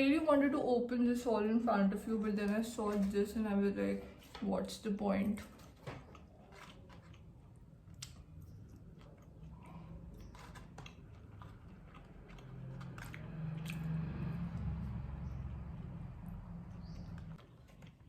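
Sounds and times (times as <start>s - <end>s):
chewing and biting food: 5.5s - 16.0s, 16.7s - 18.0s.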